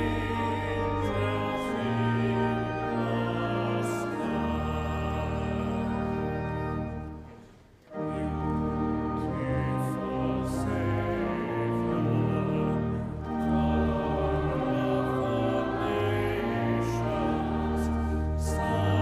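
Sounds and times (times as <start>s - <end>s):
choir singing sacred music: 0.0s - 19.0s
instrumental accompaniment: 0.0s - 19.0s.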